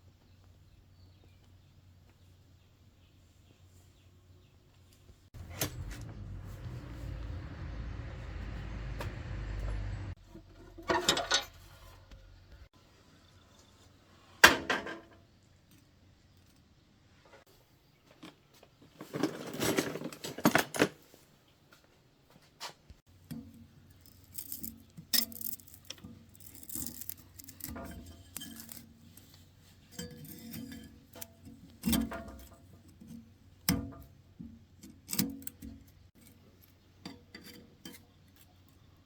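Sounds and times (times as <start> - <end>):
metal tools clinking: 23.9 - 32.6.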